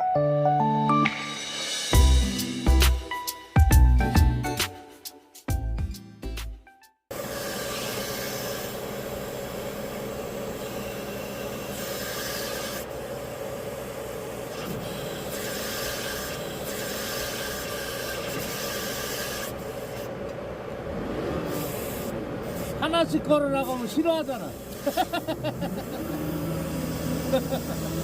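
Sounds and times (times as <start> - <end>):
rough rasping hiss: 10.4 - 20.2, 21.4 - 23.0, 23.6 - 28.0.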